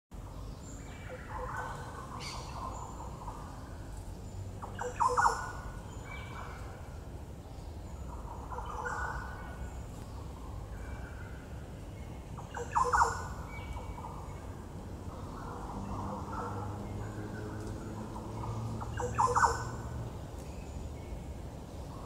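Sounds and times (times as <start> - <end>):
birds chirping and whistling: 4.7 - 6.4, 12.5 - 13.7, 18.9 - 19.7.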